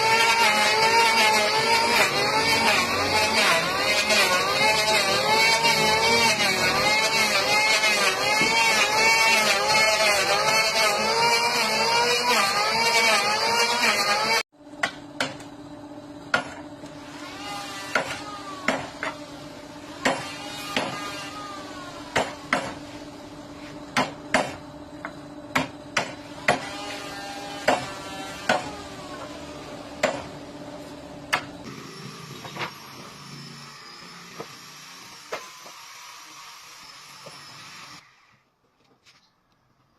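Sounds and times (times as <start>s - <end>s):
machine with high whine: 24.6s - 35.7s.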